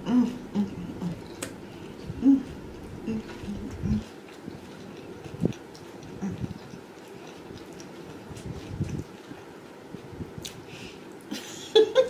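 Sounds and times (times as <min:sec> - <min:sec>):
person chewing crunchy food: 0:00.0 - 0:10.7
small mouth clicks: 0:01.0 - 0:02.2.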